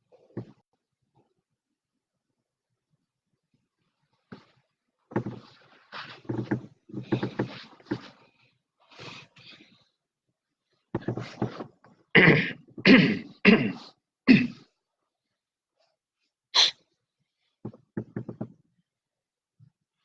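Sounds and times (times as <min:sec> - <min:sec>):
person sneezing: 0:12.2 - 0:14.6, 0:16.6 - 0:16.8
person coughing: 0:12.2 - 0:14.7, 0:16.6 - 0:16.8.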